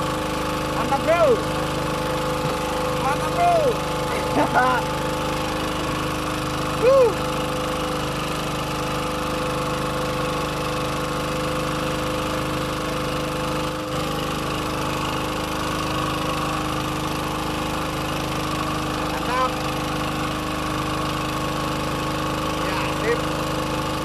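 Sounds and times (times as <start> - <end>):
boat engine droning: 0.0 - 24.0.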